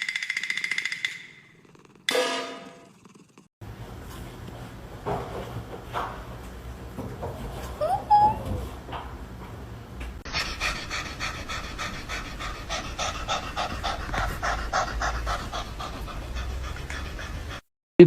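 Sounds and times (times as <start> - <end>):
pet panting rapidly: 10.3 - 17.6.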